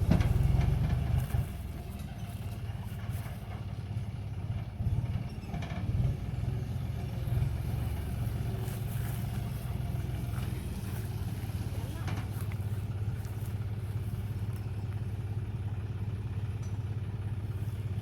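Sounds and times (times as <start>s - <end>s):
diesel engine throbbing: 0.0s - 18.0s.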